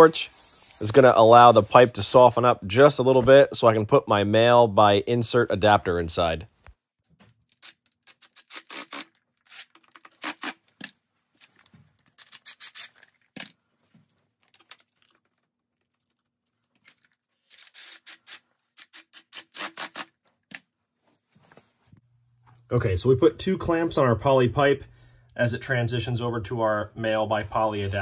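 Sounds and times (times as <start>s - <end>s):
hands scraping and clicking pipe fittings: 6.6s - 20.7s.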